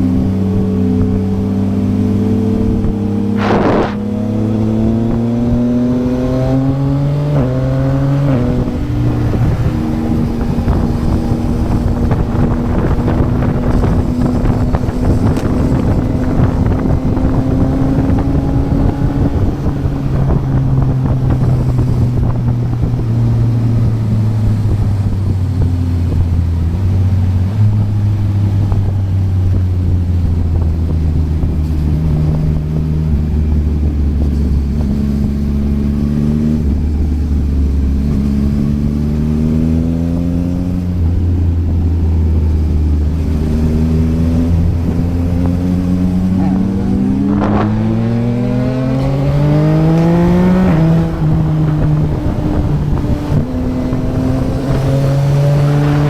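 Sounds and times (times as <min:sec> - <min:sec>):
motorcycle engine revving: 0:00.0 - 0:56.0
quick gear upshifts: 0:00.0 - 0:56.0.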